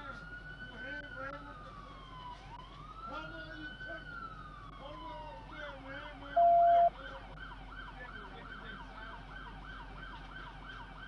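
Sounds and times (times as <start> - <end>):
loud steady beep: 6.4 - 6.9
police siren yelping: 6.4 - 7.9.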